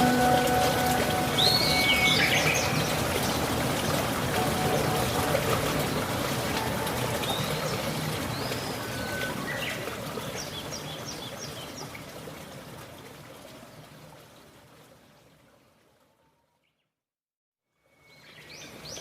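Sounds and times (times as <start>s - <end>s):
birds calling: 0.0s - 5.2s
running water: 0.0s - 16.1s.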